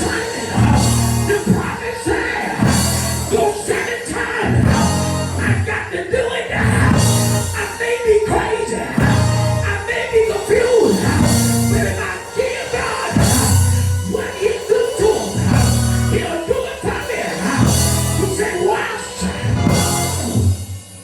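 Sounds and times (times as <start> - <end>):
cymbal crashes: 0.0 - 5.7
voices singing: 0.0 - 20.5
drums: 0.0 - 21.0
heavy bass line: 0.0 - 21.0
keyboard: 0.0 - 21.0.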